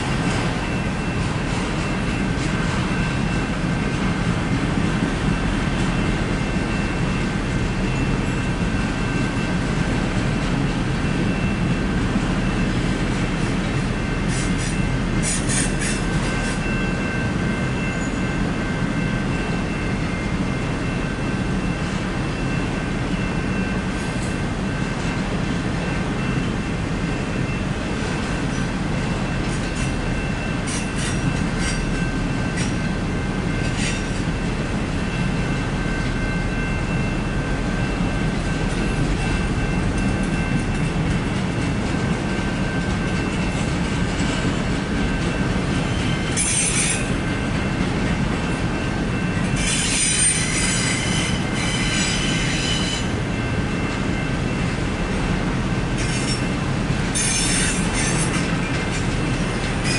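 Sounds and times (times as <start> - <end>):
freight train wheels rumbling: 0.0 - 59.9
high wheel squeal: 14.3 - 17.2, 33.5 - 34.2, 45.9 - 47.1, 49.4 - 53.5, 56.0 - 59.9.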